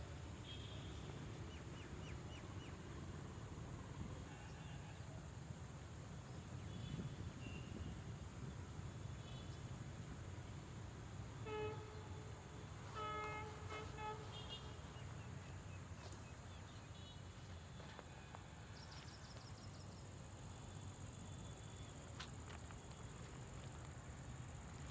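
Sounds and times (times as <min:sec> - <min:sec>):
distant horn toots: 0:11.4 - 0:18.4.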